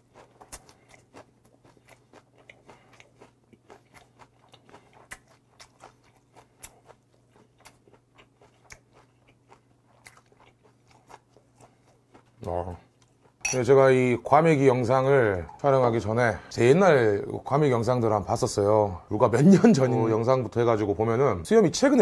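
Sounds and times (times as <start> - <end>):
person chewing food: 0.0 - 13.5.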